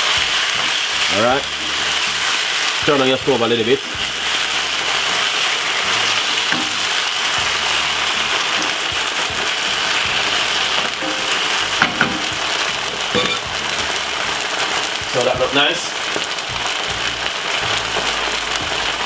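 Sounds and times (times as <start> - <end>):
sauce sizzling in a frying pan: 0.0 - 19.0.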